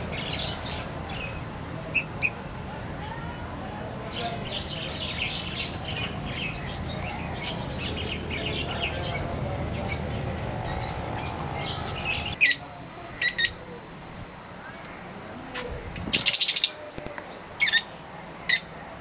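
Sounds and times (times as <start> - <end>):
low steady rumble: 0.0 - 13.1
birds chirping and chattering: 0.0 - 18.9.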